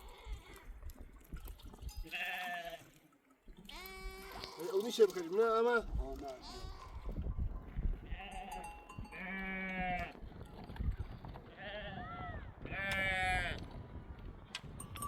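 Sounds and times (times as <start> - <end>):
sheep bleating: 2.1 - 2.9, 3.6 - 4.8, 6.3 - 7.1, 8.1 - 10.2, 11.6 - 13.6.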